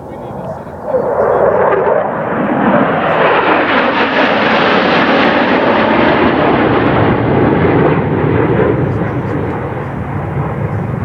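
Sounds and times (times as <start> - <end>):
jet aircraft flying past: 0.0 - 11.0.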